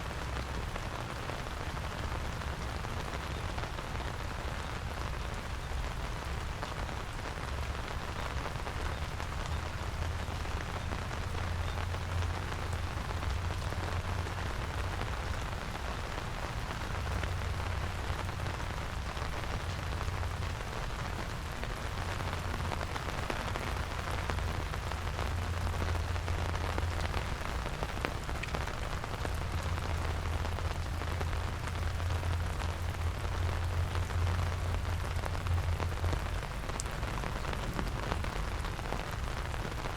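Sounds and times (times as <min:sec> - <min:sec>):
rain pattering on surfaces: 0:00.0 - 0:39.9
low rumble: 0:33.5 - 0:39.7.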